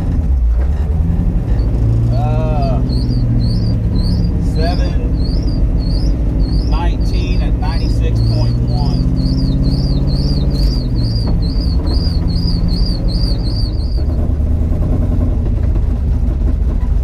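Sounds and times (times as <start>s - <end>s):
car engine running at low revs: 0.0s - 17.0s
high chirp: 2.1s - 14.2s.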